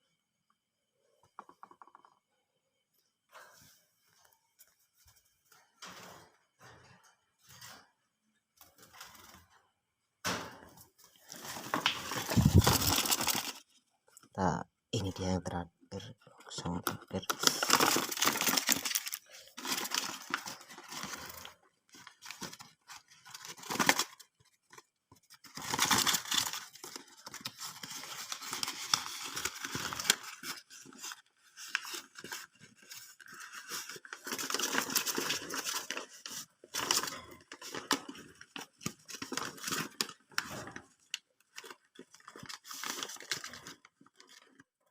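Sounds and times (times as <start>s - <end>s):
paper tearing and crumpling: 11.2s - 13.6s, 17.2s - 24.2s, 25.4s - 40.9s, 41.5s - 44.4s.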